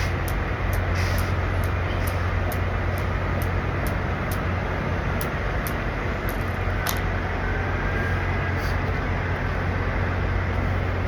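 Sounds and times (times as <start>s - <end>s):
truck engines idling: 0.0s - 11.0s
faint high ticks: 0.2s - 4.5s.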